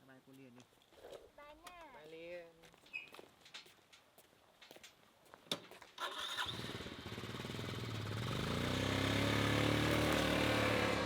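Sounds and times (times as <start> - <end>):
motorbike engine starting and running: 6.0 - 11.0.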